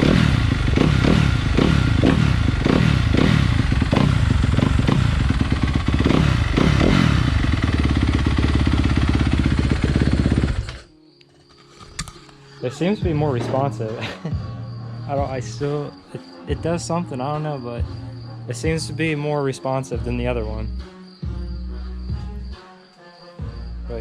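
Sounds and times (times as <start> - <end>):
motorbike engine revving and idling: 0.0 - 10.9.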